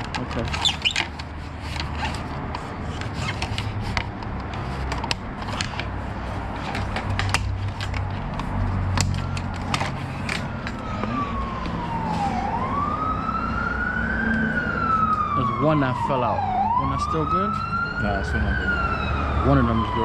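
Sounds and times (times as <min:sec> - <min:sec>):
plastic panels clicking: 0:00.0 - 0:10.9
siren: 0:09.0 - 0:20.0.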